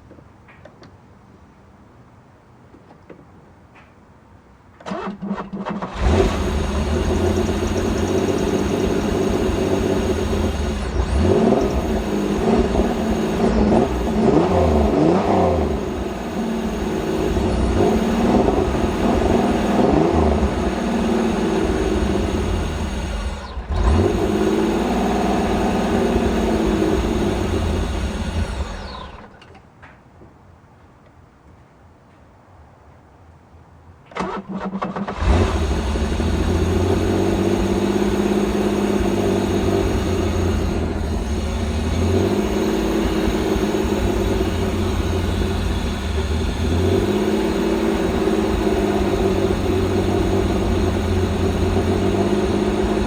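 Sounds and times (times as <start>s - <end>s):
car starter cranking: 4.8s - 29.6s, 34.1s - 53.0s
car engine running and revving: 5.8s - 29.3s, 35.1s - 53.0s.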